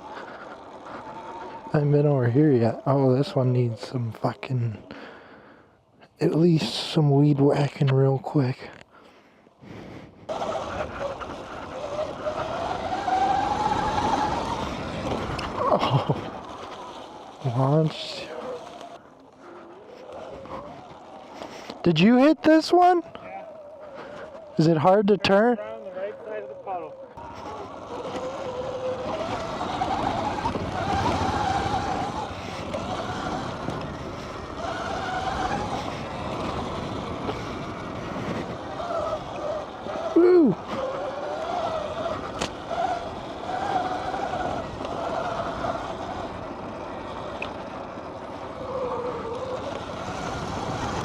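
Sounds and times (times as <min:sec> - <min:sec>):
tyre noise: 0:09.7 - 0:51.0
electric motor whine rising: 0:10.3 - 0:24.6, 0:26.0 - 0:51.0.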